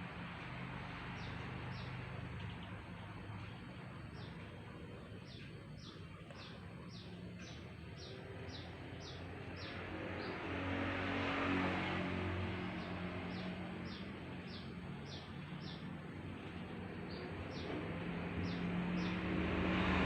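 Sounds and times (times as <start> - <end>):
low engine hum: 0.0 - 20.0
motor vehicle passing: 0.0 - 20.0
bird chirping: 1.2 - 10.4, 13.3 - 17.8.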